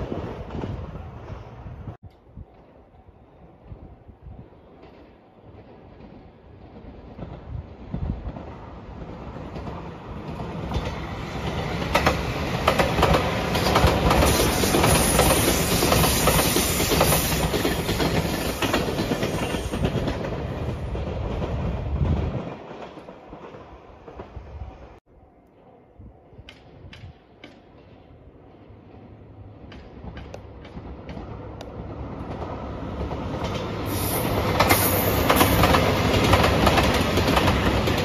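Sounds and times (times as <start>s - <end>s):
electric train passing: 0.0s - 38.0s
wheels clacking over rail joints: 29.6s - 38.0s.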